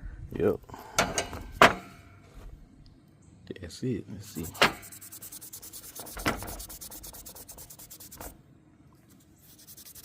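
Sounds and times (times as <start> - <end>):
rubbing or scraping strokes: 4.4 - 8.4, 9.1 - 10.0.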